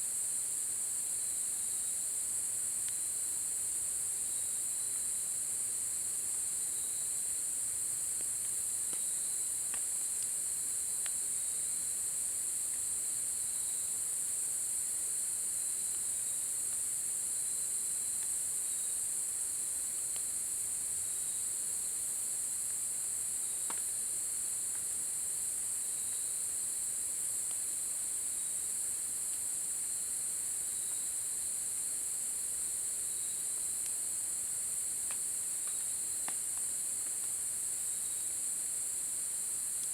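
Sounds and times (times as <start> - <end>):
faint ticks: 8.2 - 9.1, 9.7 - 10.4, 11.0 - 11.2, 23.6 - 23.9, 33.6 - 34.0, 35.0 - 37.4
thin insect trill: 12.5 - 39.9.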